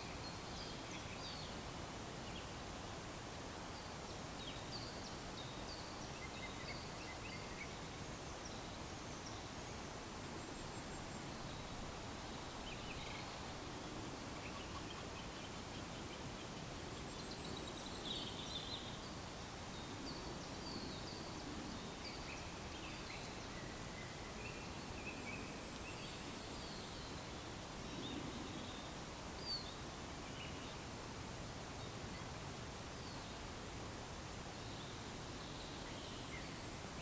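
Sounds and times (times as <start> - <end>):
outdoor background hiss: 0.0 - 37.0
songbirds chirping: 0.0 - 37.0.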